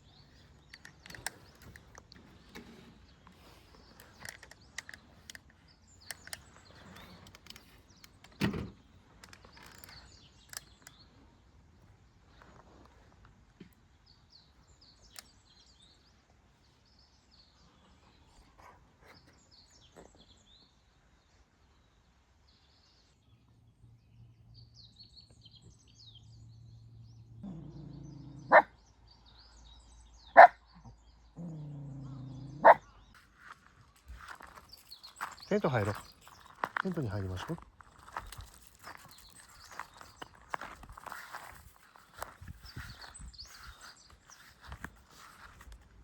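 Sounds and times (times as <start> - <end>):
faint bird chirps: 22.6 - 45.7
dog growling: 27.4 - 28.7, 31.4 - 33.0
dog barking: 28.2 - 28.7, 30.3 - 30.9, 32.4 - 32.9.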